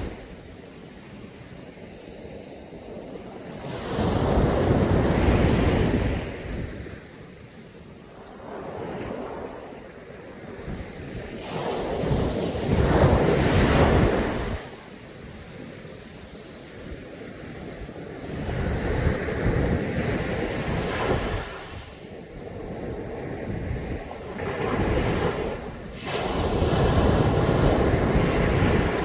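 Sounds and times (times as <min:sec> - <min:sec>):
steady surf wash: 0:00.0 - 0:29.0
waves breaking on sandy beach: 0:00.0 - 0:29.0.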